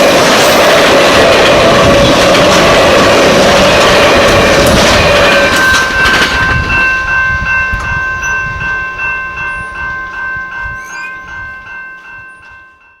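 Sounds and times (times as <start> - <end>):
passenger train rumble: 0.0 - 13.0
level-crossing bell ringing: 4.4 - 13.0.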